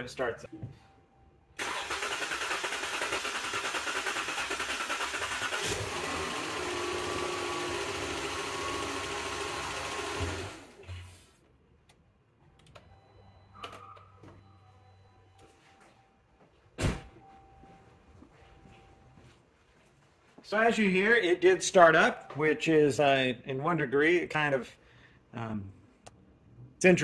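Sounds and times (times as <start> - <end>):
car engine running: 1.6 - 10.6
starter cranking engine: 1.6 - 10.8.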